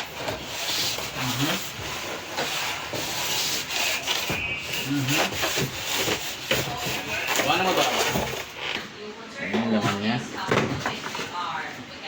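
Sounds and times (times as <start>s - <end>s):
box and packing material scraping: 0.0s - 8.6s.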